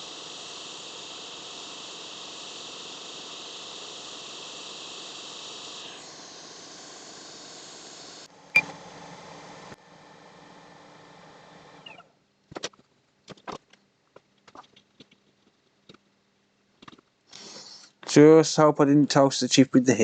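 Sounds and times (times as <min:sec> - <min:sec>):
hot air station hissing: 0:00.0 - 0:12.0, 0:17.3 - 0:18.7.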